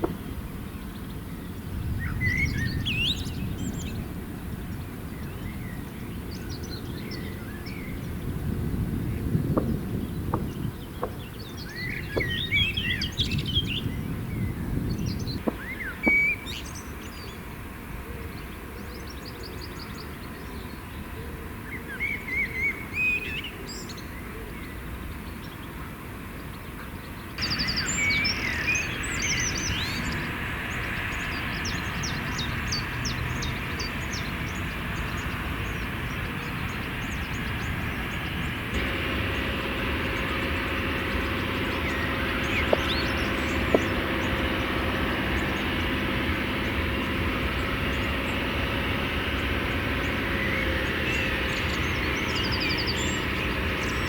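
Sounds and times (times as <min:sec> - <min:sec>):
low outdoor rumble: 0:00.0 - 0:54.0
small birds chirping and trilling: 0:00.0 - 0:54.0
steady hum: 0:33.6 - 0:54.0.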